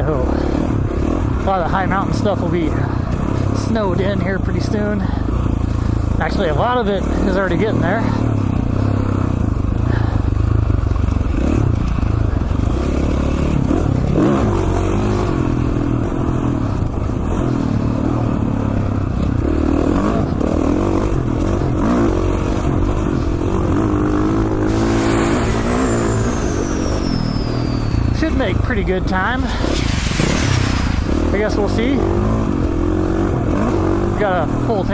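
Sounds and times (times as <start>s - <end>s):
dirt bike engine revving: 0.0s - 34.9s
high tone gliding down: 24.3s - 29.1s.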